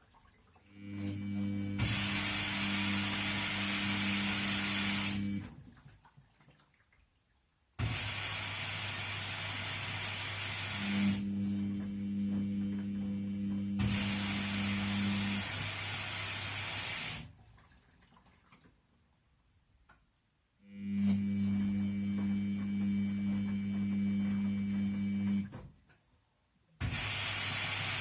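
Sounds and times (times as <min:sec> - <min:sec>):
water rushing into washing machine: 0:00.0 - 0:07.2, 0:07.8 - 0:19.0, 0:26.8 - 0:28.0.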